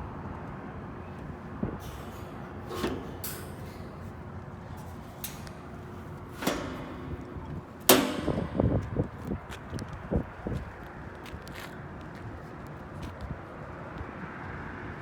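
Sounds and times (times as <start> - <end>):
knocks and clanks on metal: 1.7 - 9.9.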